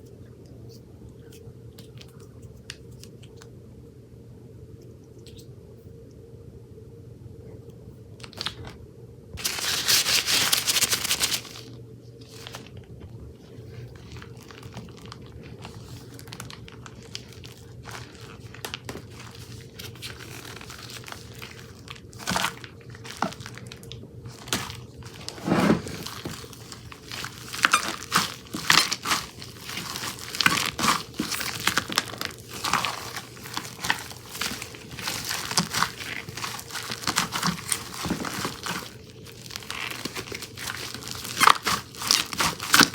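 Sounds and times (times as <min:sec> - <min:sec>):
slime squished crackling and popping: 0:26.0 - 0:42.9.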